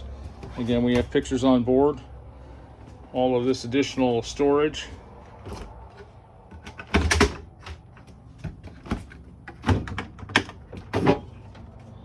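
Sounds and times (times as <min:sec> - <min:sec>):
cabinet doors opening and shutting: 0:05.4 - 0:11.7.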